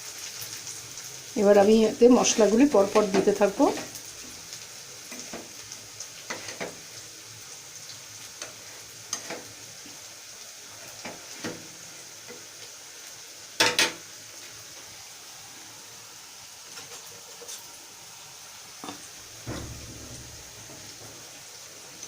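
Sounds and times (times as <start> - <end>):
onion sizzling in oil: 0.0 - 22.0
spoon scraping pan: 2.7 - 4.0, 6.2 - 6.8, 8.4 - 9.6.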